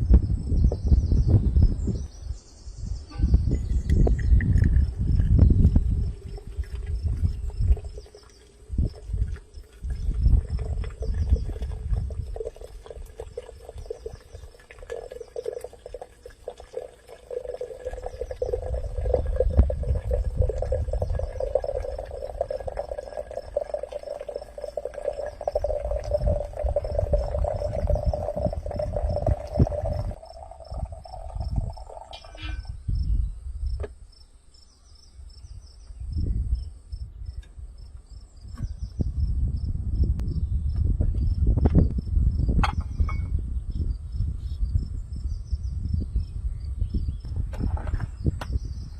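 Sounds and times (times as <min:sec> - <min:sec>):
crickets chirping: 0:00.2 - 0:48.9
low rumbles: 0:17.4 - 0:33.7.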